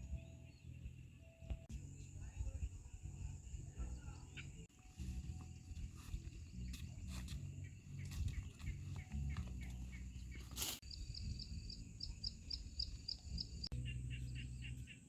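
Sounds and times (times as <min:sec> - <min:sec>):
low wind rumble: 0:00.0 - 0:15.0
brief rustle: 0:10.4 - 0:10.8.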